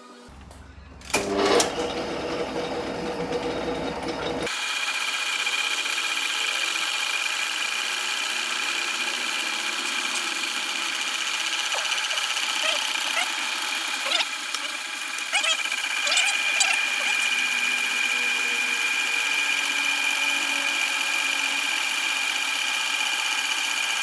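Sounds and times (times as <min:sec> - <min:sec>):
metalworking machinery running: 0:00.3 - 0:24.0.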